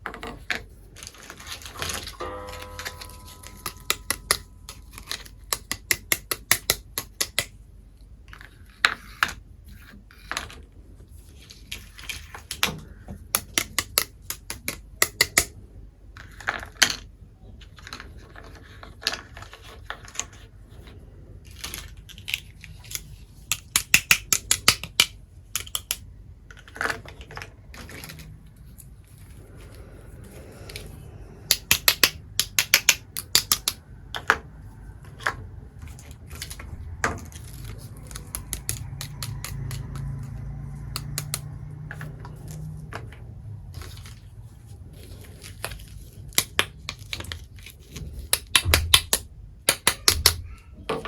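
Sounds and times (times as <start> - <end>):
small toy pieces clicking: 2.9 - 7.6, 11.6 - 15.5, 21.5 - 28.4, 31.5 - 34.5, 35.2 - 43.1, 45.0 - 50.6.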